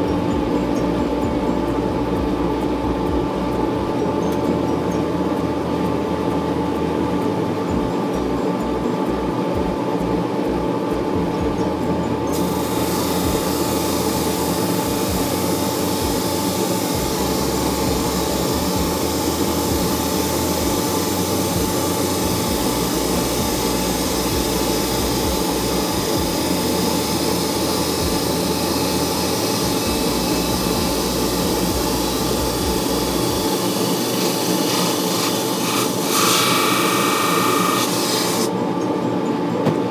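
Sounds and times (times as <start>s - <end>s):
drum sander motor hum: 0.0s - 39.9s
sanding drum rasping wood: 12.3s - 38.5s.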